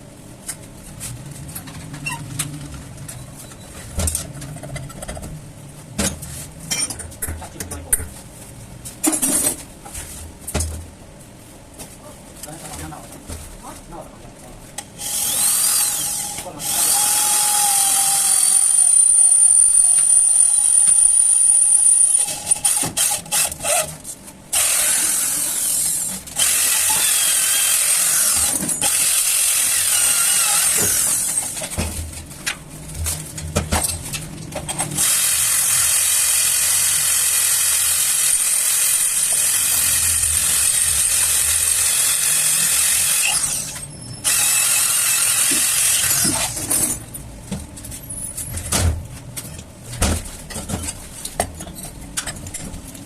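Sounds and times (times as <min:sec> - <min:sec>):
electric power drill running: 0:15.0 - 0:23.8, 0:24.6 - 0:31.5, 0:35.0 - 0:46.6.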